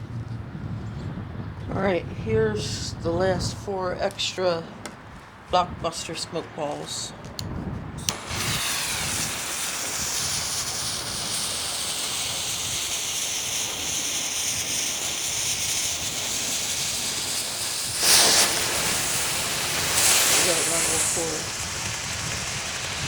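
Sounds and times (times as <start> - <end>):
smoke balls hissing: 8.0 - 23.0.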